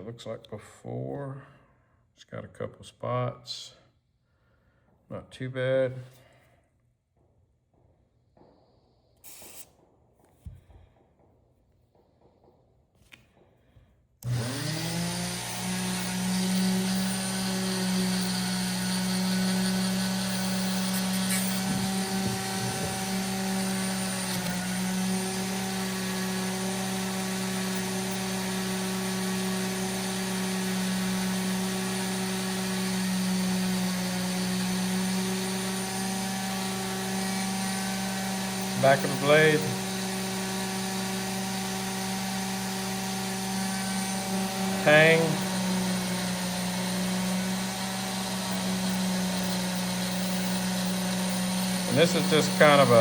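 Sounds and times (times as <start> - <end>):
electric rotary tool running: 14.2 - 53.0.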